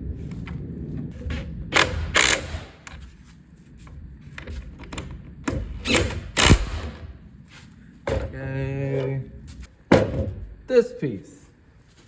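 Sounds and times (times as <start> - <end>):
tools and parts knocking: 4.4 - 6.9, 8.0 - 9.1, 9.9 - 10.5.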